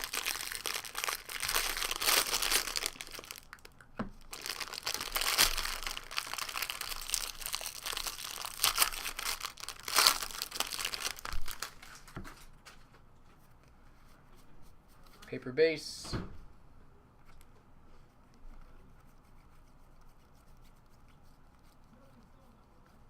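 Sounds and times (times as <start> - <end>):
plastic wrapper tearing and crinkling: 0.0 - 12.7.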